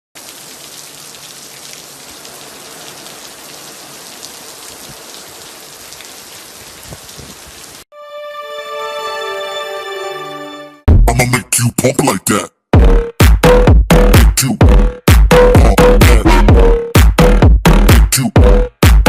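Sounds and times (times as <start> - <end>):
steady rain hiss: 0.2 - 7.9
electronic music: 12.8 - 19.0.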